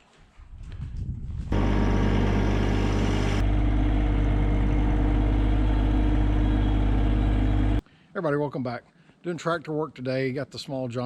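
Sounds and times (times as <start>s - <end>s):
tractor engine running: 1.5s - 7.8s.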